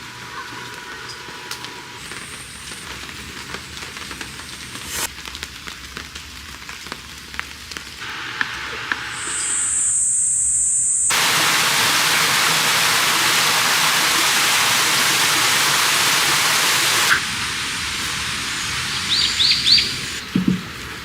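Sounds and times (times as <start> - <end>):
light rain: 0.0 - 9.2, 11.1 - 21.0
heavy rain hissing: 0.0 - 21.0
steady high-pitched tone: 8.0 - 14.6.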